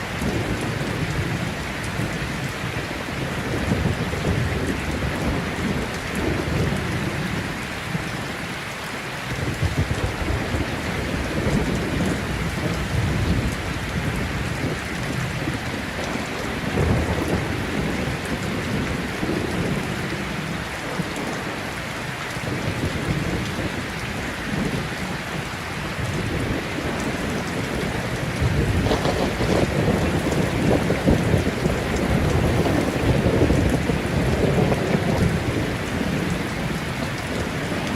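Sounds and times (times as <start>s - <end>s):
heavy rain: 0.0s - 37.9s
thunder rumbling: 9.3s - 21.8s, 22.4s - 37.9s.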